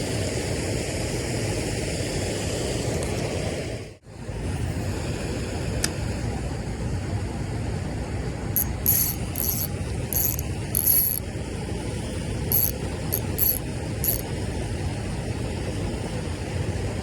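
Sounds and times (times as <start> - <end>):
fishing reel clicking and whirring: 8.6 - 11.2, 12.5 - 14.3.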